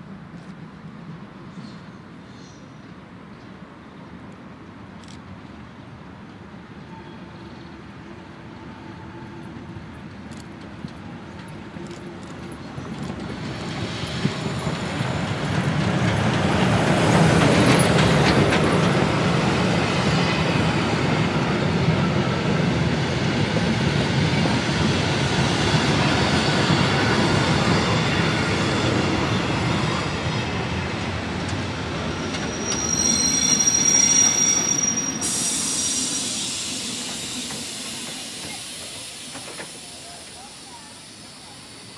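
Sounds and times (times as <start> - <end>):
train wheels rumbling on rails: 9.4 - 41.9
high wheel squeal: 32.1 - 41.9.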